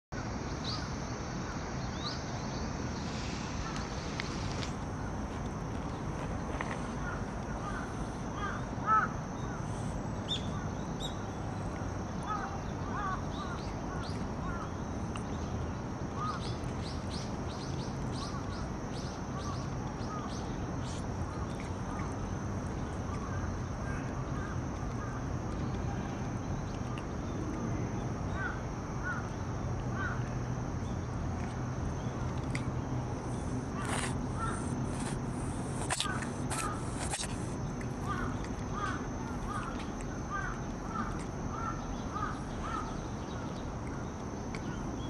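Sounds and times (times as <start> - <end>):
steady high whine: 0.2 - 45.0
birds chirping: 33.2 - 45.0.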